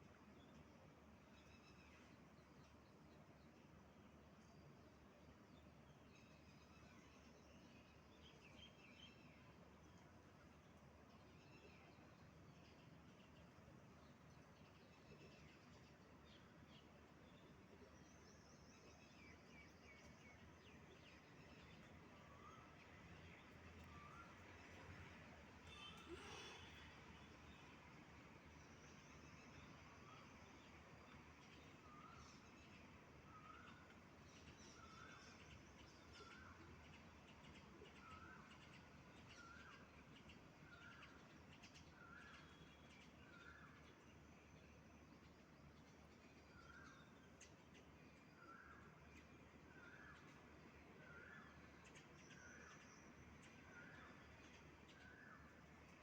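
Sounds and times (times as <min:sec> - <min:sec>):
low background hiss: 0:00.0 - 0:56.0
faint high bird chirps: 0:25.6 - 0:26.9, 0:31.6 - 0:36.6
faint bird chirps: 0:25.6 - 0:27.7, 0:31.4 - 0:45.3, 0:46.2 - 0:56.0
faint whistle: 0:25.7 - 0:26.9.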